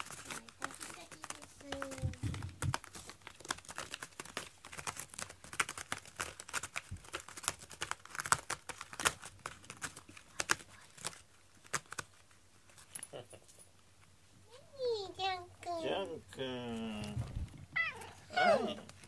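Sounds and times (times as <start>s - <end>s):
cat scratching cardboard: 0.0s - 12.9s.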